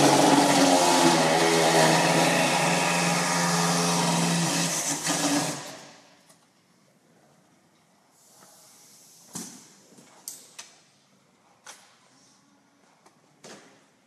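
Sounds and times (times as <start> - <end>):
loud machine humming: 0.0 - 5.8.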